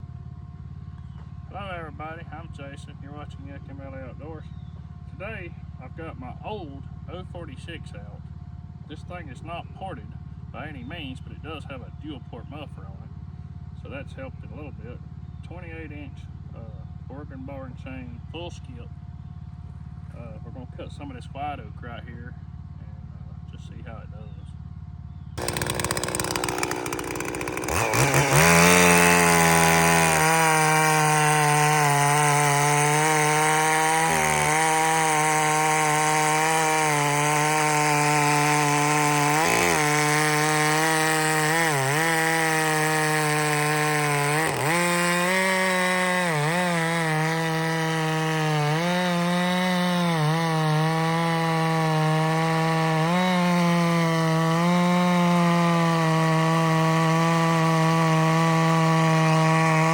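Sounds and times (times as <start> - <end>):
chainsaw cutting wood: 25.4 - 59.9.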